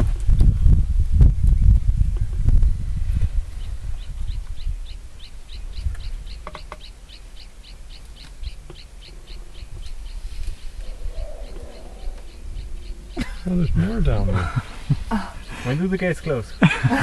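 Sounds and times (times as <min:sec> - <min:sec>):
low rumble: 0:10.0 - 0:15.4.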